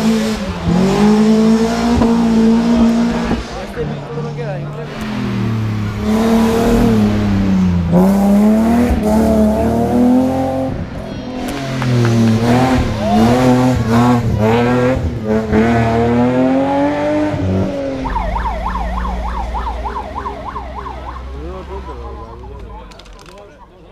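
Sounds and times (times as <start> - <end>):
rally car engine revving: 0.0 - 23.4
wailing siren: 17.6 - 21.5.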